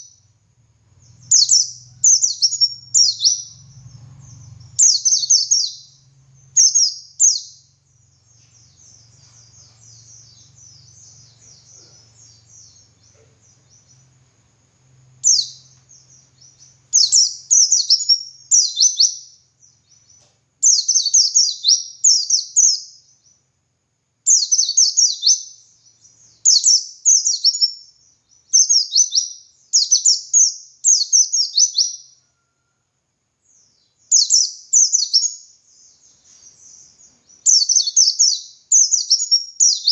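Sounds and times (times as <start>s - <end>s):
bird twittering: 1.0s - 14.1s, 15.2s - 23.4s, 34.0s - 39.9s.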